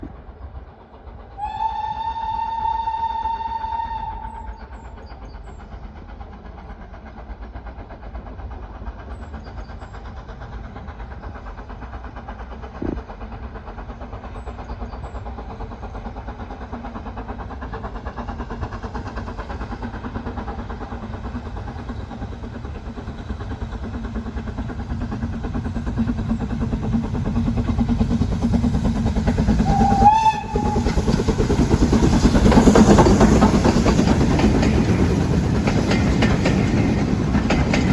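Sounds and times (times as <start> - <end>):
steam locomotive exhaust: 0.0 - 37.9
steam whistle: 1.4 - 4.6, 29.6 - 31.0.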